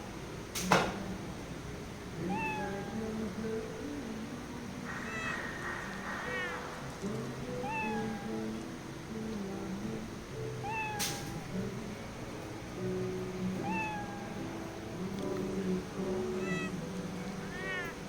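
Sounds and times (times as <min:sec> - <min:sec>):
background music: 0:01.0 - 0:18.0
cat meowing: 0:02.2 - 0:03.0, 0:04.9 - 0:05.6, 0:07.6 - 0:08.4, 0:10.6 - 0:11.4, 0:13.6 - 0:14.4, 0:16.4 - 0:16.8, 0:17.5 - 0:17.9.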